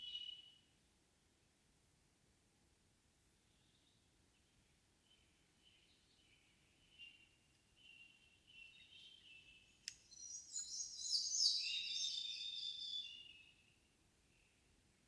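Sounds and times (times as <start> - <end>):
bird singing fast high song: 0.0 - 0.6, 5.1 - 13.8
songbirds singing: 3.5 - 14.8.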